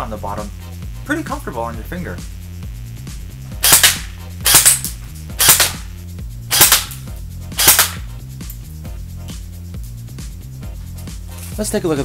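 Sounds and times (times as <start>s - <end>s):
background music with beat: 0.0s - 12.0s
airsoft gun firing volleys: 3.6s - 5.9s, 6.5s - 8.1s.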